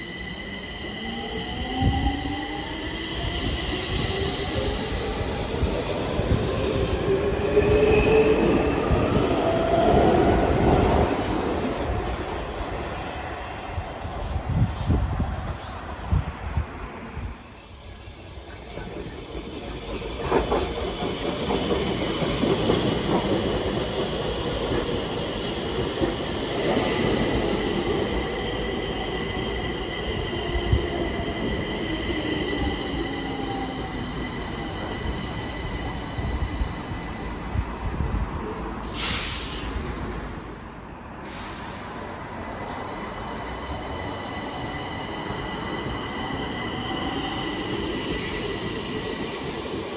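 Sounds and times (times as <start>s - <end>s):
metro train running on rails: 0.0s - 49.9s
short hiss: 38.9s - 40.5s.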